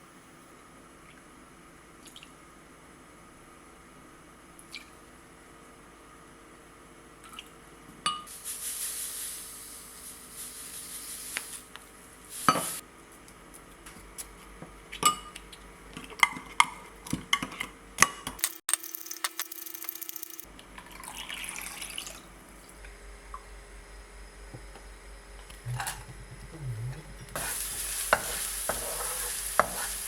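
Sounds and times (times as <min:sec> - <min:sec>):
hissing noise: 0:18.4 - 0:20.5.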